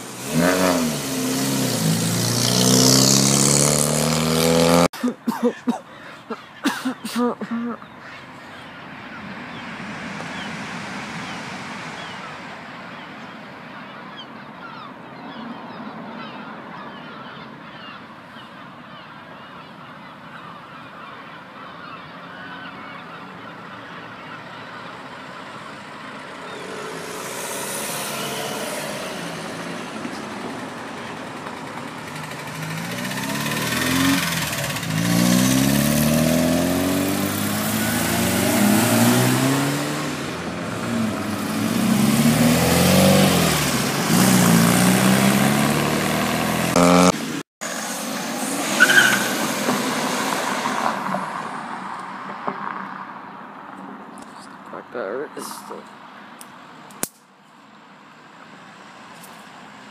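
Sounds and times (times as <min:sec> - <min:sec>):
car engine revving and pulling away: 0:00.0 - 0:04.9, 0:21.6 - 0:53.1.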